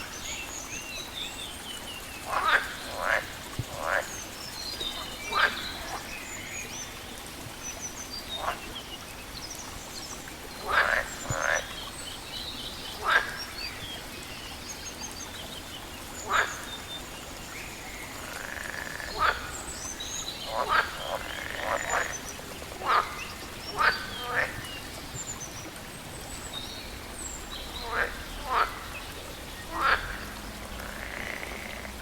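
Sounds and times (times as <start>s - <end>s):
frogs croaking: 0.0s - 32.0s
steady background hiss: 0.0s - 32.0s.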